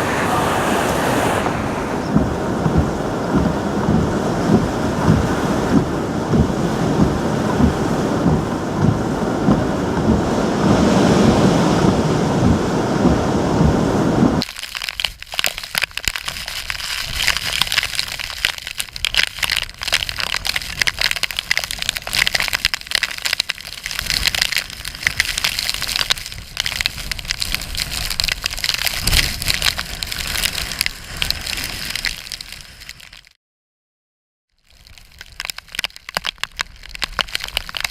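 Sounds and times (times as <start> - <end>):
wind roaring and buffeting microphone: 0.0 - 14.4, 23.6 - 32.1
heavy rain and splashing water: 0.0 - 33.4, 34.6 - 37.9.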